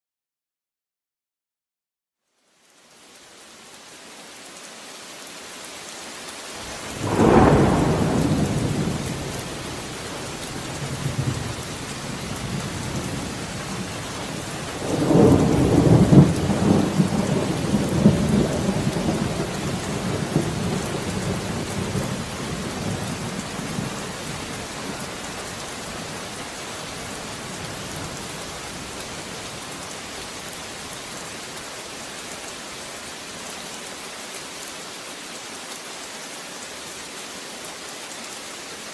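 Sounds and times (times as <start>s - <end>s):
heavy rain: 2.3s - 38.9s
thunder cracking and rumbling: 6.6s - 25.4s.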